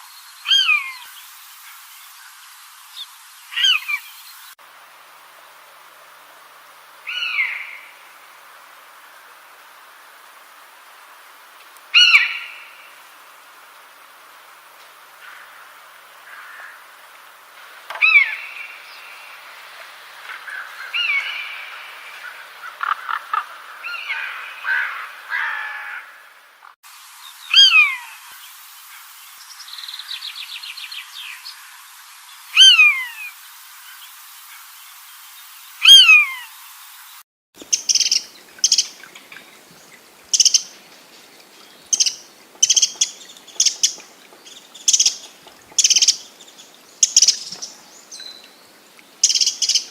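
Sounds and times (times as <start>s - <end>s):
short sharp high bird calls: 27.5s - 28.2s, 32.6s - 33.3s, 35.8s - 36.5s
whistled bird call sliding downward: 27.5s - 28.2s, 32.5s - 33.3s, 35.8s - 36.5s
birds chattering: 37.6s - 49.9s
fast rattling bird trill: 37.7s - 39.1s, 40.3s - 40.8s, 41.9s - 46.2s, 47.0s - 47.7s.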